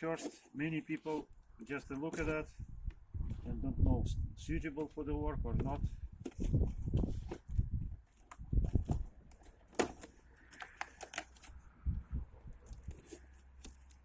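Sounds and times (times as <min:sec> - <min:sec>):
packaging rustle: 0:08.8 - 0:11.6.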